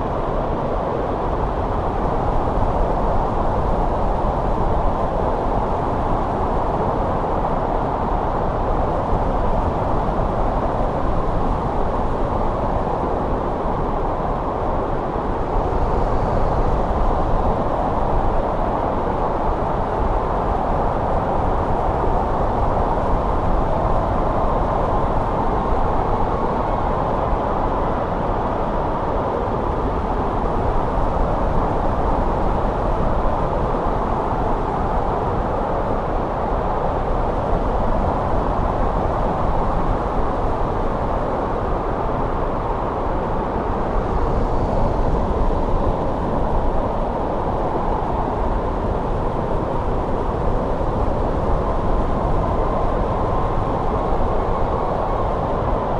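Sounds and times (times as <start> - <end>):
snowstorm wind blowing: 0.0 - 55.9.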